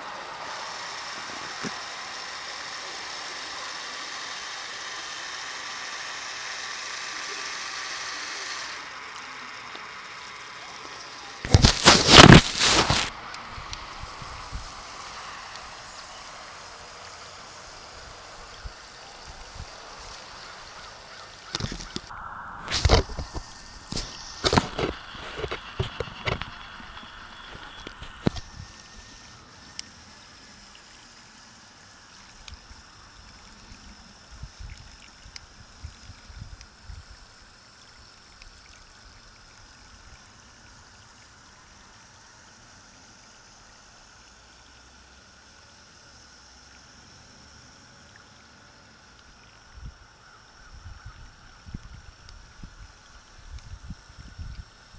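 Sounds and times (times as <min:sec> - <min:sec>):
faint high whine: 0:08.6 - 0:44.3
small ticks: 0:14.9 - 0:44.4, 0:48.0 - 0:54.9.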